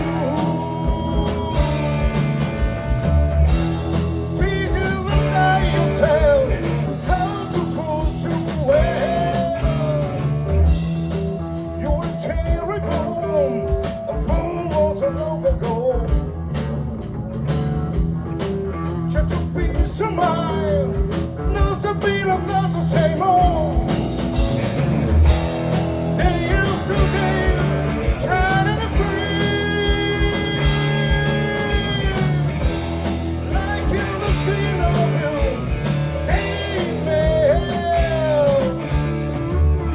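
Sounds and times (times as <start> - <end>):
lead guitar bending notes: 0.0 - 14.9
band playing rock-blues: 0.0 - 39.9
bass: 0.0 - 39.9
drums: 0.0 - 39.9.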